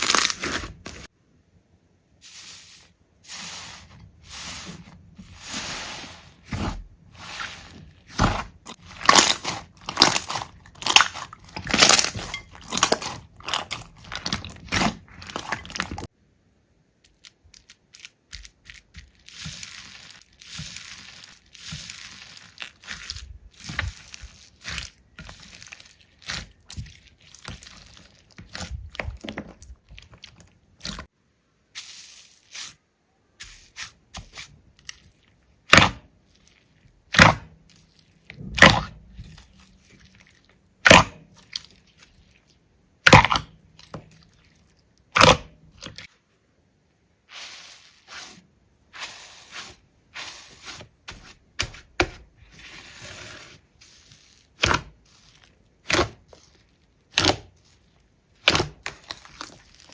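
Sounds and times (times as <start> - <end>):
hands squishing slime: 4.3 - 16.1, 17.1 - 31.1, 33.6 - 46.1, 53.8 - 59.9.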